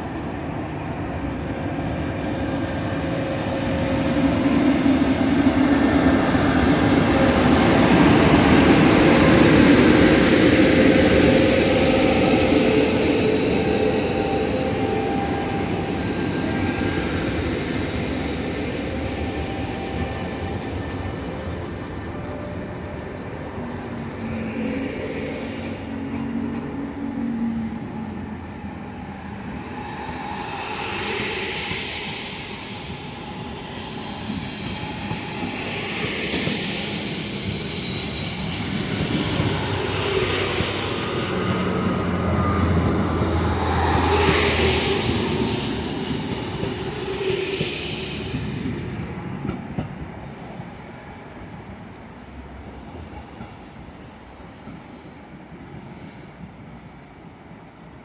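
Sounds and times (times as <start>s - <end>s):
train wheels rumbling on rail: 0.0s - 58.0s
high wheel squeal: 2.2s - 23.2s, 28.8s - 49.8s.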